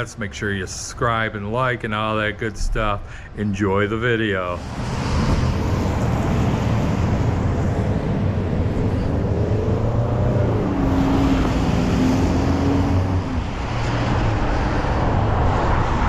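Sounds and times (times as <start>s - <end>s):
road vehicle rumble: 0.0s - 16.0s
drawn-out drifting tone: 4.2s - 16.0s.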